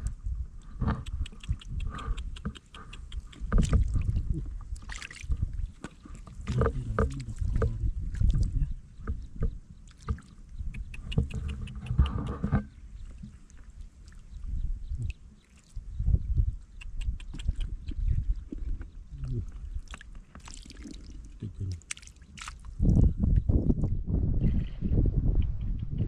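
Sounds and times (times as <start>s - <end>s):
water splashing and sloshing: 2.5s - 15.8s, 17.4s - 23.0s.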